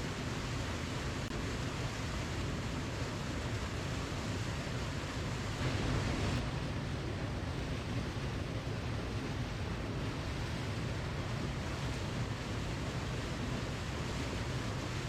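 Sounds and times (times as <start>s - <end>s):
waterfall rushing: 4.6s - 6.4s.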